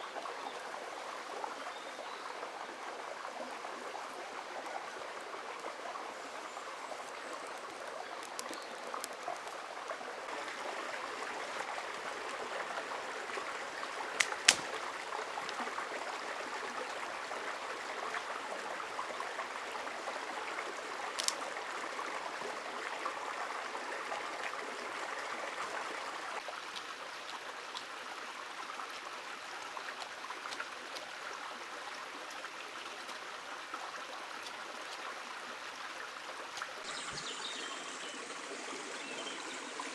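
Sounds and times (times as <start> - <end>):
river water running: 0.0 - 39.9
sharp clicks: 14.2 - 14.8, 21.2 - 21.4.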